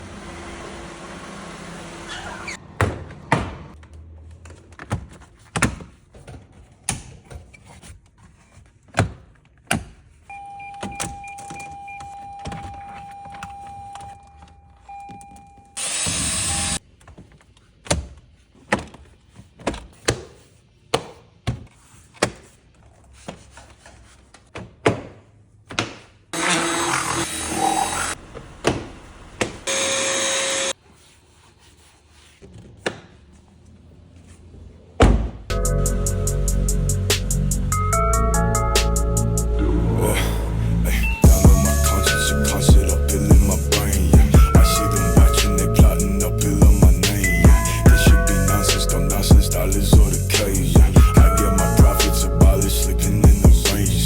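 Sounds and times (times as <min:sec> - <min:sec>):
steady electronic tone: 0:35.5 - 0:54.0.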